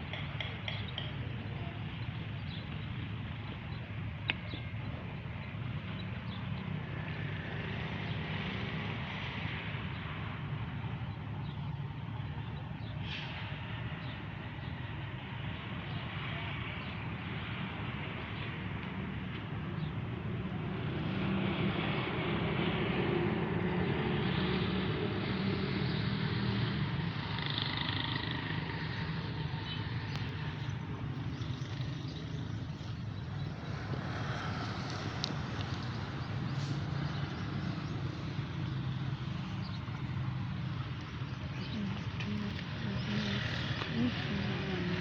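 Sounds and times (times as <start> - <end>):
engine running: 26.9 - 45.0.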